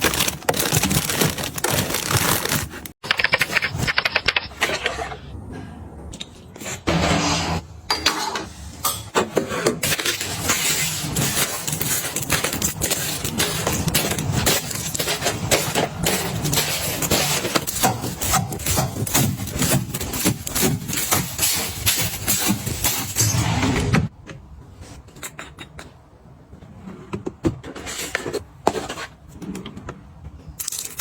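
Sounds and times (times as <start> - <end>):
rustling and scraping of items: 0.0 - 3.0, 8.2 - 23.4, 26.5 - 31.0
items clicking: 0.0 - 4.5, 9.8 - 23.0.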